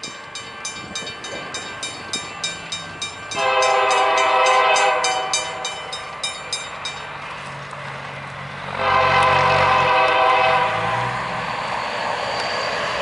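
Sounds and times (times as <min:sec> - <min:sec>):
bell ringing: 0:00.0 - 0:07.2
locomotive air horn blast: 0:03.4 - 0:05.6, 0:08.7 - 0:11.2.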